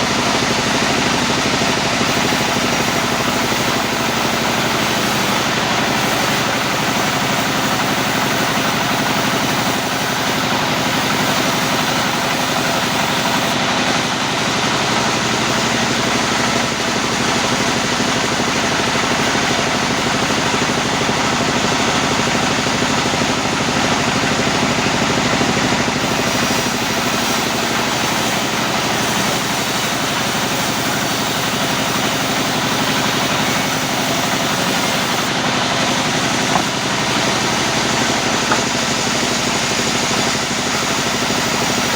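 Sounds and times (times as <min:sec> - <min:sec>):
sawmill machinery running: 0:00.0 - 0:41.9.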